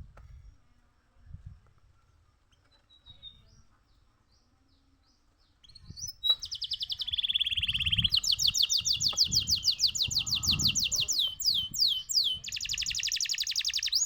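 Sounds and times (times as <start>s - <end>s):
canary singing trills: 2.5s - 14.0s.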